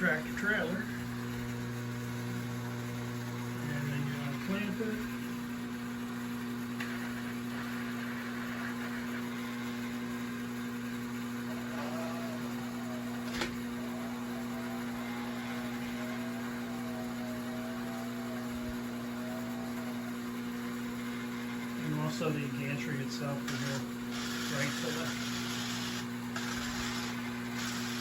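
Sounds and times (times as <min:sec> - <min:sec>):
steady electrical hum: 0:00.0 - 0:28.0
small motor whirring: 0:06.4 - 0:22.4, 0:23.4 - 0:28.0.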